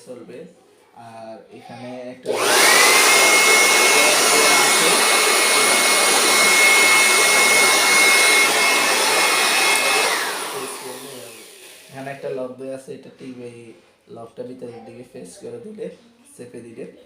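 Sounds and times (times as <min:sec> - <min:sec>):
electric blower whining: 0:02.3 - 0:12.0.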